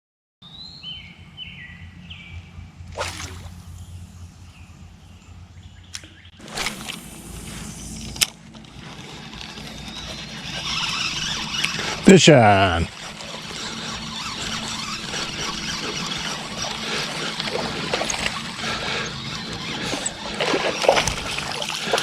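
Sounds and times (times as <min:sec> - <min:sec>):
birds chirping: 0:00.4 - 0:22.0
steady low rumble: 0:01.1 - 0:09.8
fishing rod swishes and reel clicks: 0:05.9 - 0:22.0.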